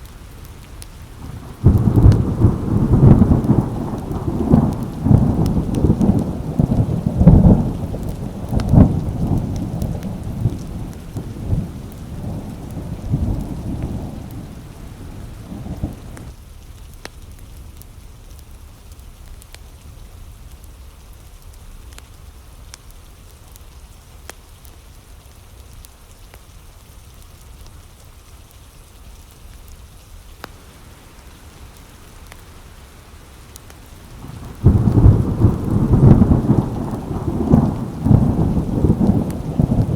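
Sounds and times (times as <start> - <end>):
faint drip ticks: 0.0 - 39.9
steady rain: 0.0 - 39.9
rolling thunder: 1.2 - 16.3, 33.6 - 39.9.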